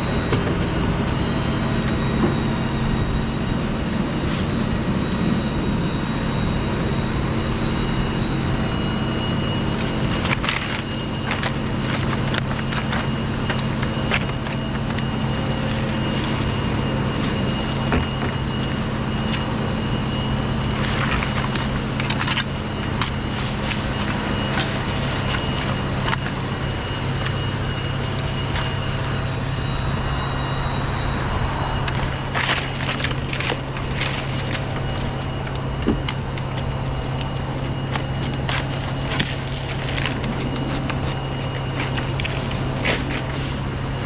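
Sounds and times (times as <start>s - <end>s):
motor running: 0.0s - 44.0s
cracks and rustles: 9.6s - 19.6s, 20.4s - 28.8s, 31.8s - 43.7s.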